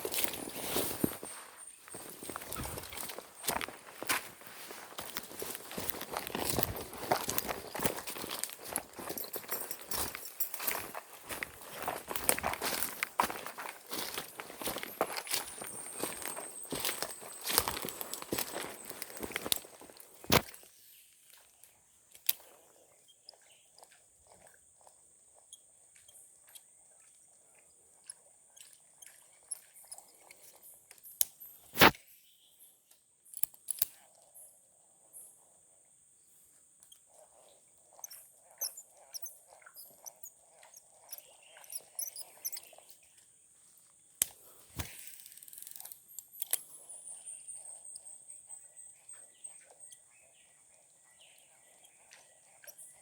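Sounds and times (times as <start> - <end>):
high-pitched insect trill: 0.0 - 20.3, 38.0 - 42.9.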